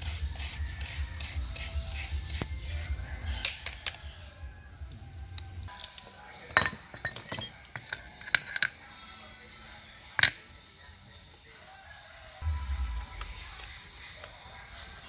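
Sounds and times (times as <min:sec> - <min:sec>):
small metal parts clinking: 0:05.7 - 0:08.8, 0:10.2 - 0:10.4.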